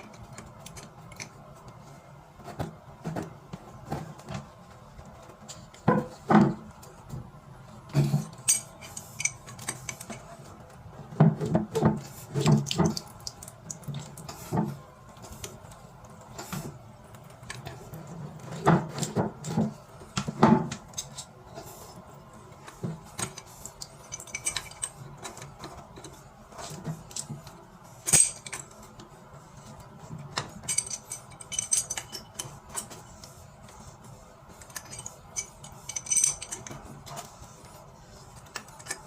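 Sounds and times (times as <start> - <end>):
metal plumbing fittings clinking: 8.3 - 10.3, 23.2 - 26.1, 30.6 - 32.9, 34.6 - 36.8.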